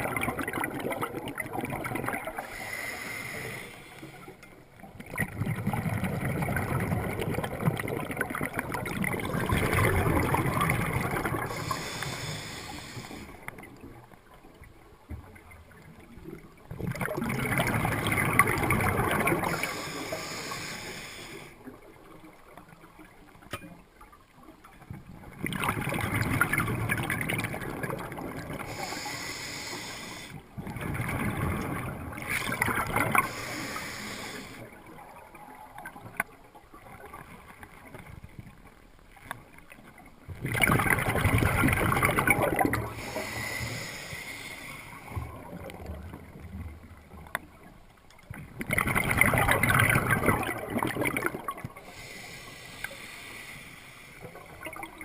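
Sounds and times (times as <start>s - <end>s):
water washing and sloshing: 0.0s - 23.6s, 24.2s - 53.2s.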